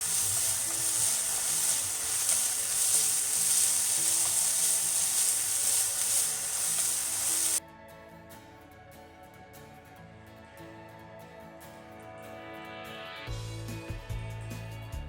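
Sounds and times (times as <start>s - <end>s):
vegetables sizzling in a frying pan: 0.0s - 7.6s
soft background music: 0.0s - 15.0s.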